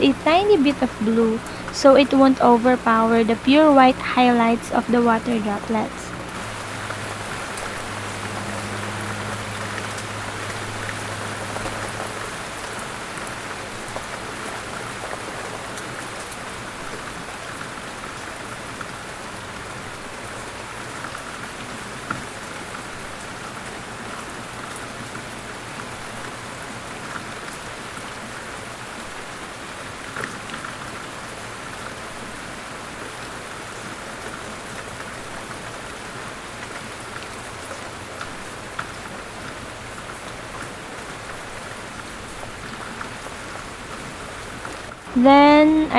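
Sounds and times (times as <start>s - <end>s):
steady rain: 0.0s - 45.9s.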